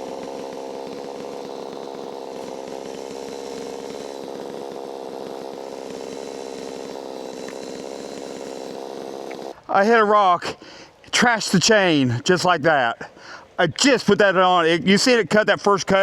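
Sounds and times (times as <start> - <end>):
two-stroke chainsaw running: 0.0 - 9.6.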